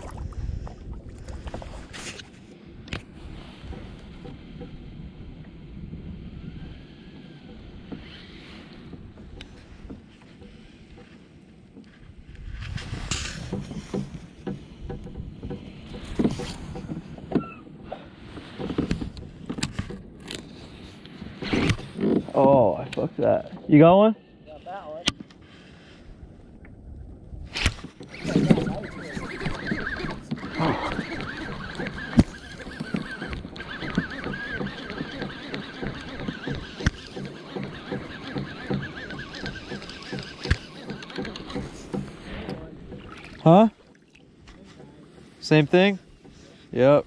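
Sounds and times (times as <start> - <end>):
wind and water rumble: 0.0 - 47.0
gear knocking against kayak hull: 8.7 - 12.3, 13.2 - 23.9, 27.7 - 46.7
sharp knocks: 31.4 - 44.0.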